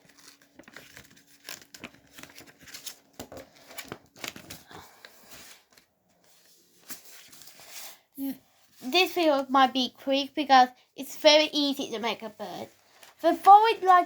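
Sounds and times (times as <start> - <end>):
paper crinkling and rustling: 0.0 - 8.0, 12.2 - 14.0.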